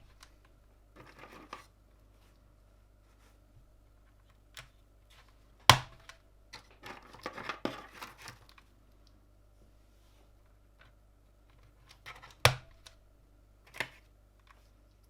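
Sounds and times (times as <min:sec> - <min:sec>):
rustling handling noise: 0:00.0 - 0:12.4
hard plastic snap: 0:05.7 - 0:06.2, 0:12.3 - 0:13.0.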